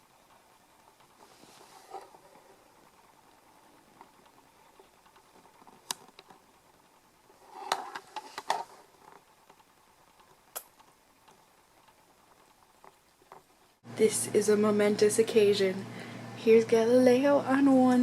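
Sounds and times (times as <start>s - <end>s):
rustling: 0.0s - 13.8s.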